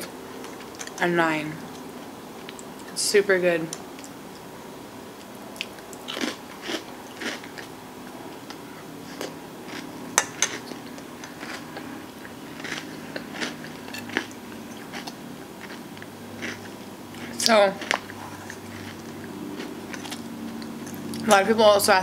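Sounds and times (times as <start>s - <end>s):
chewing crunchy food: 5.2s - 21.3s.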